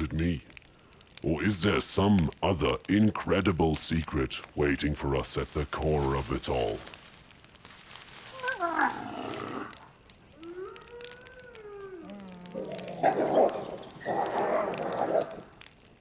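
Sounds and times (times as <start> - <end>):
wavering howl-like call: 8.2 - 9.8, 10.4 - 15.4
rough growls: 8.3 - 15.6.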